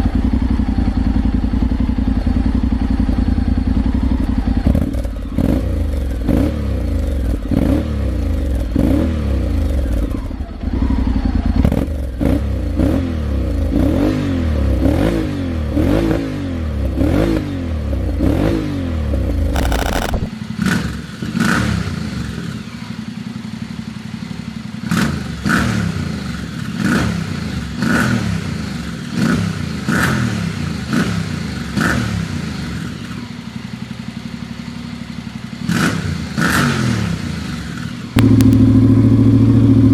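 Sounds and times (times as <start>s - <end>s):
motorcycle engine revving: 4.4s - 13.1s, 19.6s - 22.2s, 35.5s - 39.9s
sharp clicks: 19.6s - 20.4s.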